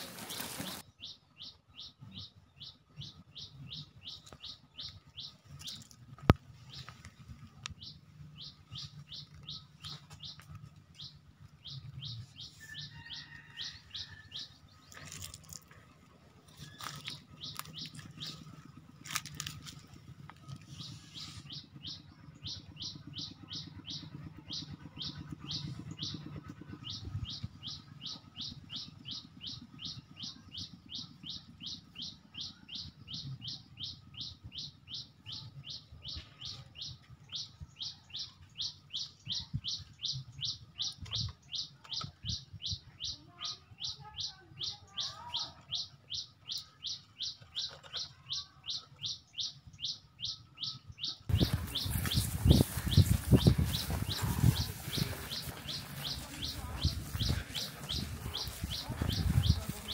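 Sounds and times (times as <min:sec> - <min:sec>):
soft low rumble: 0:51.1 - 0:59.9.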